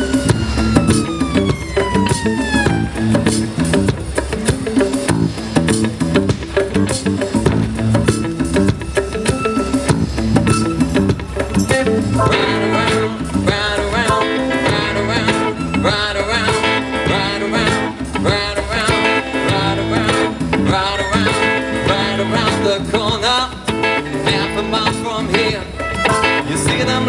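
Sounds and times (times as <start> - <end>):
drums playing steady beat: 0.0 - 27.0
electric guitar lead line: 0.0 - 27.0.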